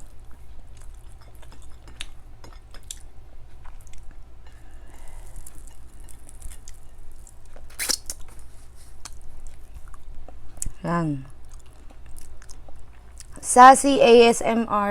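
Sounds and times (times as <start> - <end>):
wet chewing: 0.0 - 13.4.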